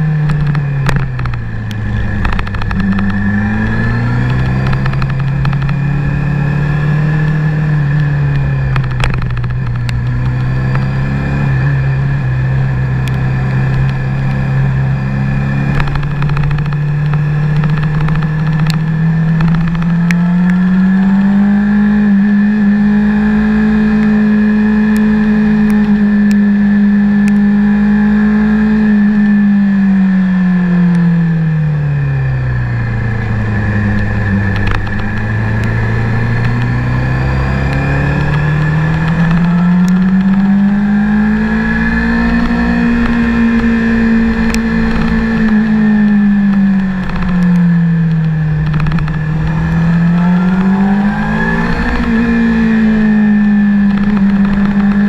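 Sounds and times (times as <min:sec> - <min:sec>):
wind rushing over microphone: 0:00.0 - 0:26.4
motorcycle engine revving: 0:00.0 - 0:55.0.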